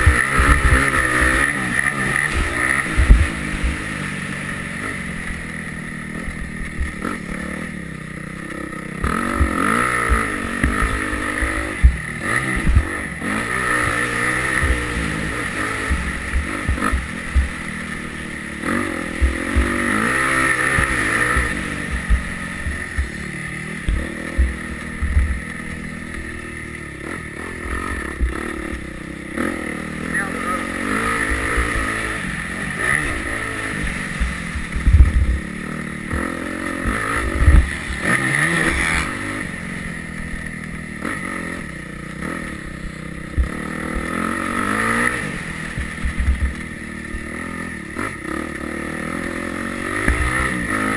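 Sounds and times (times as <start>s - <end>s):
motorcycle engine revving: 0.0s - 50.9s
short low thumps: 2.9s - 3.8s, 19.2s - 19.9s, 20.7s - 26.3s, 33.8s - 39.2s.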